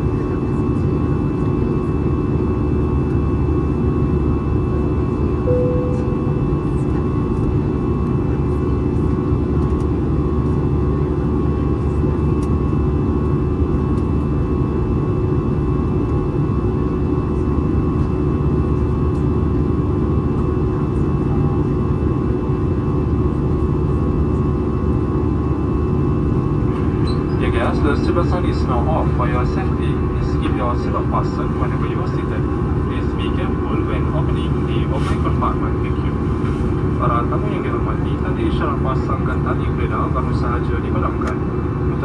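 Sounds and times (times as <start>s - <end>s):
aircraft cabin engine rush: 0.0s - 42.0s
short tone: 5.5s - 6.6s.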